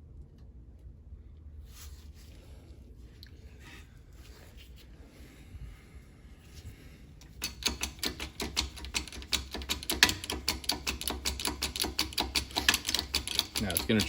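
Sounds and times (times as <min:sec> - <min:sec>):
sharp clicks of press: 0:07.4 - 0:14.0.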